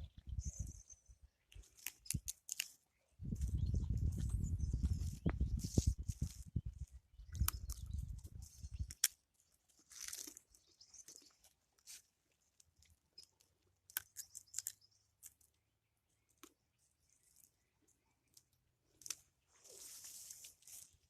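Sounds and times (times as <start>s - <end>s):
footsteps crunching on ground: 3.2s - 6.6s, 19.5s - 21.0s.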